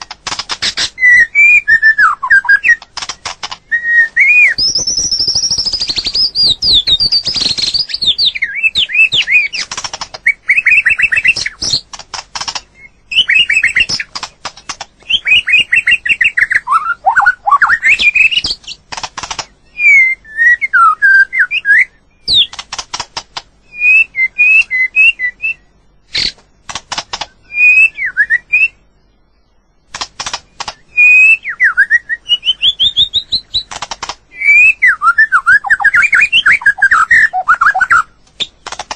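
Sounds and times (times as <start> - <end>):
sharp clicks: 0.0 - 1.0, 2.5 - 8.3, 8.9 - 16.6, 17.8 - 19.6, 22.3 - 23.6, 26.2 - 27.4, 29.9 - 30.9, 33.0 - 34.3, 37.9 - 38.9
bird singing whistled phrases: 0.8 - 2.8, 3.6 - 9.6, 10.2 - 11.8, 12.7 - 14.1, 15.0 - 18.7, 19.6 - 22.6, 23.7 - 26.4, 27.3 - 28.9, 30.7 - 33.7, 34.3 - 38.5.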